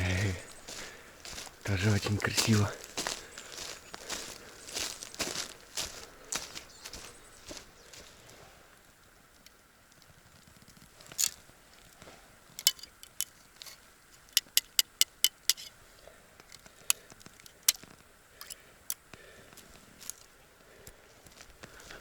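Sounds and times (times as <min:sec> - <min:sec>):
twigs crackling and snapping: 0:00.0 - 0:08.1
footsteps on forest floor: 0:00.0 - 0:08.7, 0:19.2 - 0:22.0.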